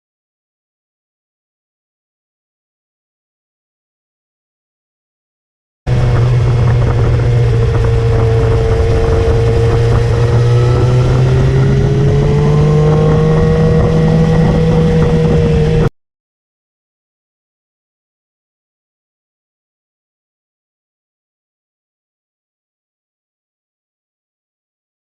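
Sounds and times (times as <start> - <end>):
motorcycle engine cruising: 5.9 - 15.9
wind and road noise: 5.9 - 15.9.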